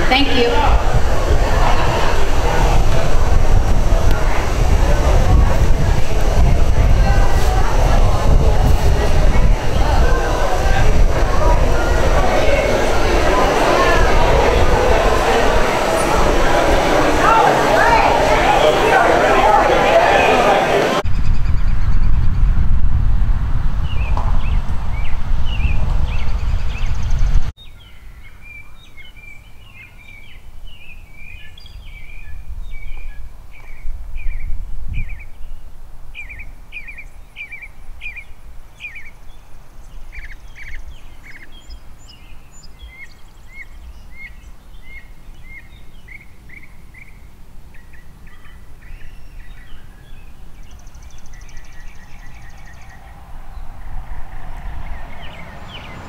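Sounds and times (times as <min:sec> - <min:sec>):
loud low rush: 0:00.0 - 0:27.5, 0:51.4 - 0:56.0
wild birds chirping and singing: 0:23.9 - 0:35.6, 0:36.2 - 0:56.0
low outdoor rumble: 0:51.0 - 0:56.0.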